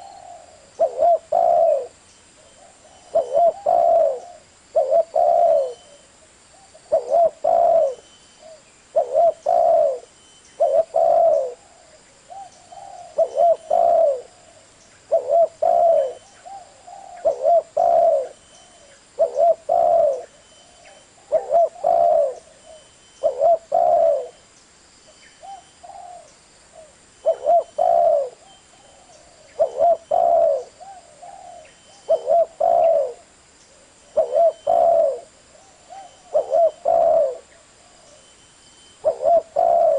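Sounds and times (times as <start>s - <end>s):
dove cooing: 0.0s - 24.4s, 25.4s - 38.3s, 39.0s - 39.9s.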